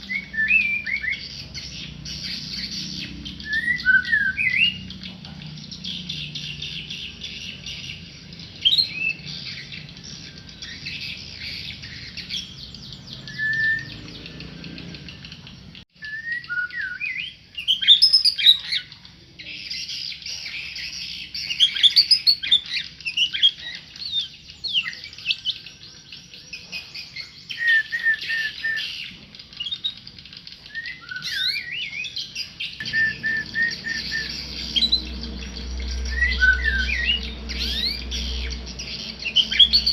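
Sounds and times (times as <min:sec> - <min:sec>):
songbird whistling and chattering: 0:00.0 - 0:39.9.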